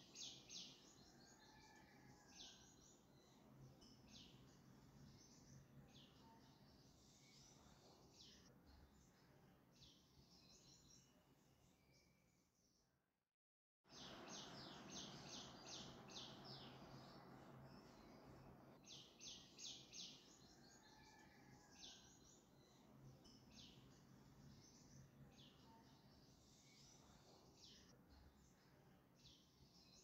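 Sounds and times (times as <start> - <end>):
faint room hum: 13.9 - 30.0.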